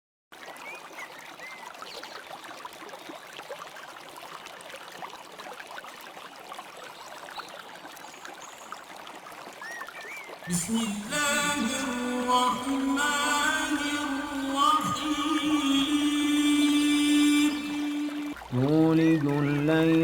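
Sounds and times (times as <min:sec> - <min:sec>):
stream flowing: 0:00.4 - 0:20.0.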